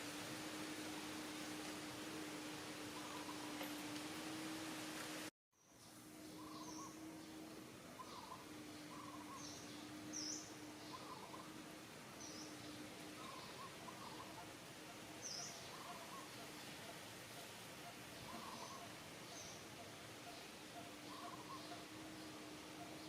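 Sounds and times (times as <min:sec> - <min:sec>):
faint hum: 0:00.0 - 0:23.0
steady background hiss: 0:00.0 - 0:23.0
lower soft bird calls: 0:02.7 - 0:04.0, 0:05.6 - 0:23.0
birds chirping: 0:02.7 - 0:04.6, 0:05.6 - 0:23.0.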